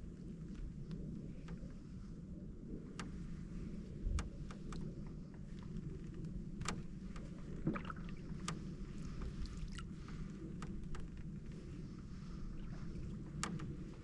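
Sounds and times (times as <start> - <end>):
steady low rumble: 0.0 - 14.0
paddle strokes in water: 0.4 - 14.0
canoe creaking: 4.3 - 14.0.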